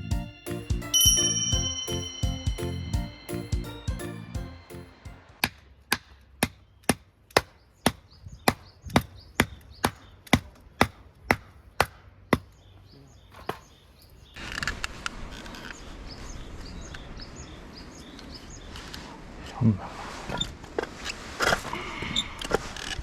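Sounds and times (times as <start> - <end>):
chopping wood: 5.4 - 12.5.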